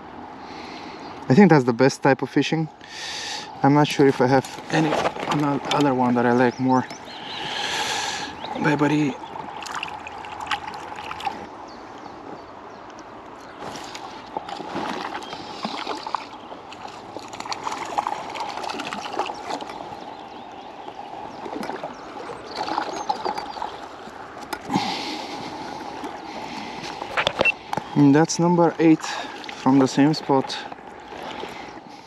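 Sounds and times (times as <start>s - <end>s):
river water flowing: 0.0s - 32.0s
short splashes: 4.2s - 11.5s, 13.5s - 31.8s.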